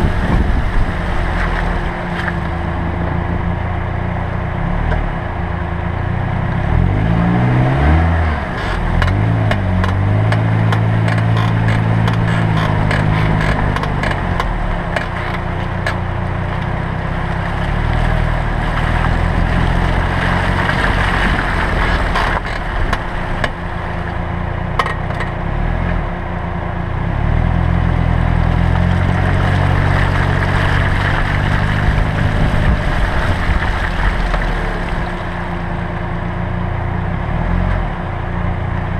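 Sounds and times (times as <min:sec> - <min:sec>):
road noise: 0:00.0 - 0:38.9
car engine speeding up: 0:06.3 - 0:24.4, 0:27.0 - 0:36.2
brake creaking clicks: 0:08.5 - 0:16.0, 0:21.2 - 0:23.7.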